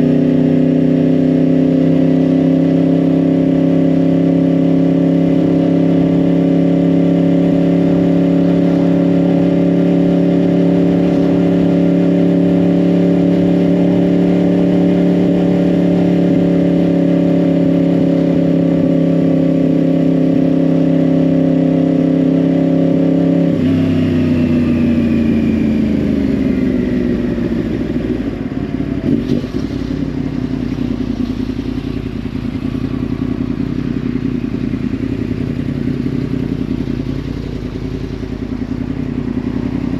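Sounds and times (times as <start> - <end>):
motorcycle engine revs falling: 23.4 - 39.9.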